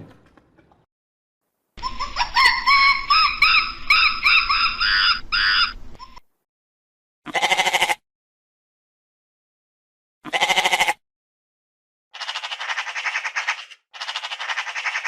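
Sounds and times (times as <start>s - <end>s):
high chirping animal calls: 1.8s - 6.2s, 12.2s - 15.0s
quavering bleat-like call: 7.3s - 8.0s, 10.2s - 11.0s.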